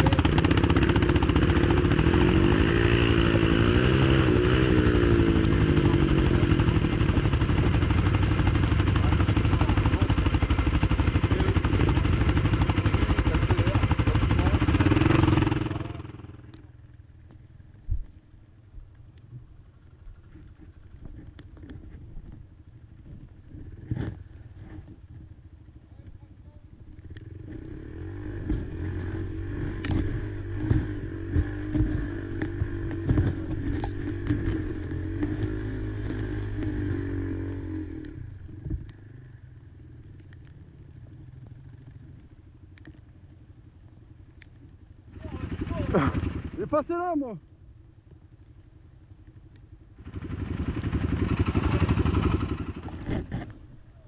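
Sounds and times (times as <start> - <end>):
quad engine revving: 0.0 - 16.4, 27.1 - 39.3, 45.1 - 47.1, 50.0 - 53.6.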